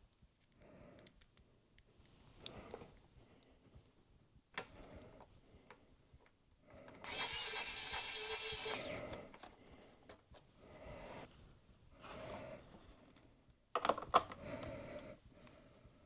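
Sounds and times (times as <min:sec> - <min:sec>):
screwdriver whirring: 0:07.0 - 0:09.2
screwdriver clicks: 0:07.1 - 0:09.2.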